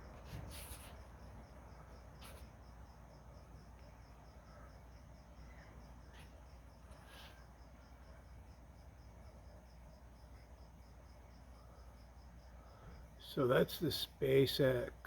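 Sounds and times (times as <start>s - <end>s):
crickets chirping: 0.0s - 15.0s
short hissy rustles: 0.2s - 1.0s, 6.1s - 7.4s.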